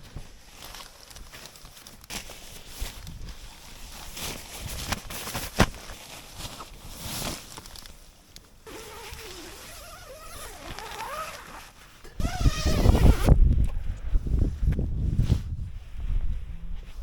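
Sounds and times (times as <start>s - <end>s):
nylon gear rustling and clicking: 0.0s - 13.3s
fabric rubbing squeaks: 8.7s - 13.4s
low rumble on microphone: 12.1s - 17.0s.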